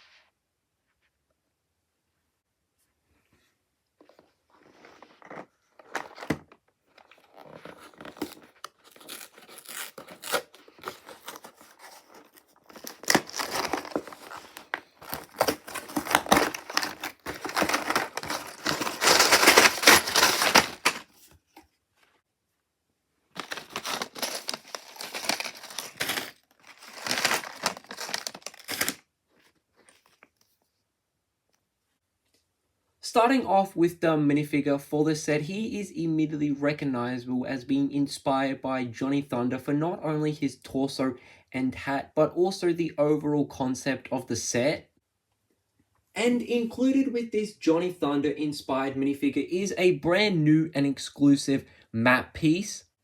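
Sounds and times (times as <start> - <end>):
packaging being torn open: 7.0 - 21.1, 23.4 - 29.0.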